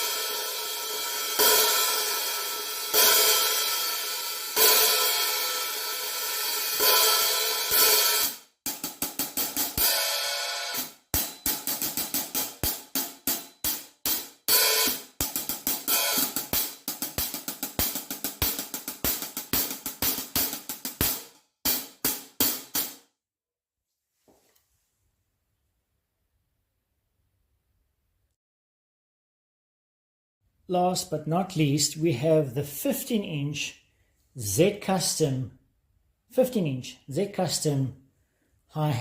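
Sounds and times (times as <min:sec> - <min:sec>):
hi-hats played with a stick: 0:00.0 - 0:23.0.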